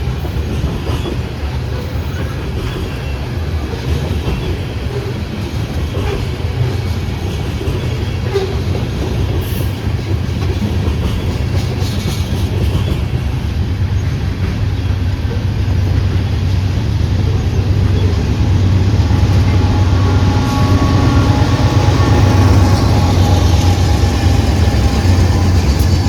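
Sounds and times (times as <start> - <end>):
train rumbling on rails: 0.0 - 26.0
steady tones: 15.0 - 26.0.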